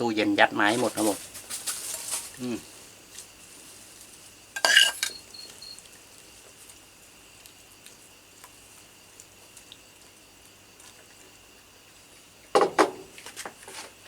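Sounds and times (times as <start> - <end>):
insect trill: 0.0 - 14.0.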